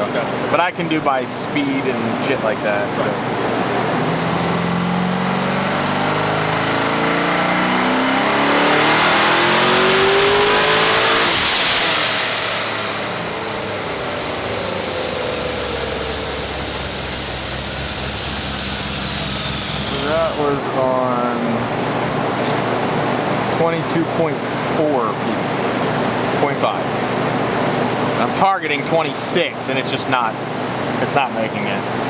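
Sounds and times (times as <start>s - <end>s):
high whine winding down: 2.5s - 21.2s
car engine revving at full throttle: 3.2s - 20.8s.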